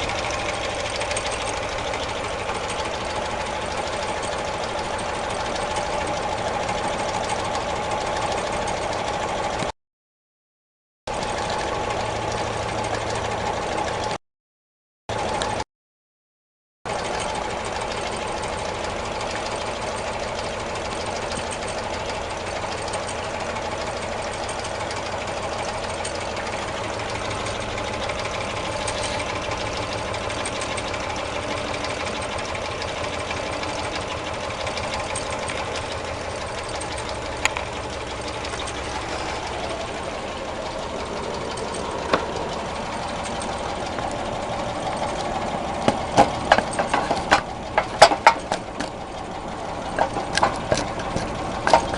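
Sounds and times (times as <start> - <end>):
stirling engine running rhythmically: 0.0 - 9.8, 11.1 - 14.2, 15.1 - 15.6, 16.9 - 51.9
sharp clicks: 25.8 - 49.2.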